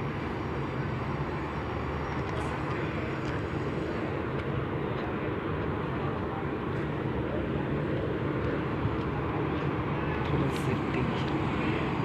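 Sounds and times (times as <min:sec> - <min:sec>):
engine rumble: 0:00.0 - 0:12.0.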